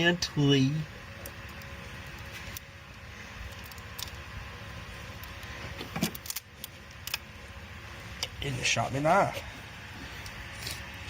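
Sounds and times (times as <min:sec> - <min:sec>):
tape peeling off wires: 0:05.1 - 0:07.3.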